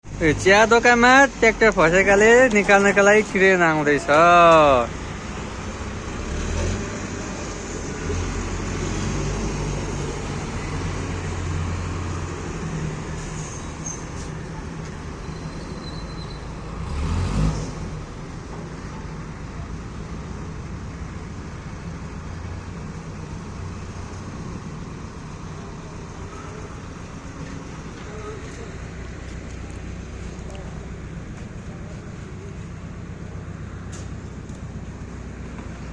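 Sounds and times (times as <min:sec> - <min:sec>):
road traffic noise: 0:00.0 - 0:35.9
heavy vehicle engine running: 0:17.7 - 0:35.9.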